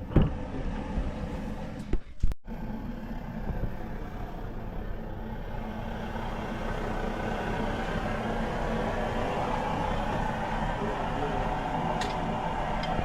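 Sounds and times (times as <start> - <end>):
steady vehicle noise: 0.0 - 13.0.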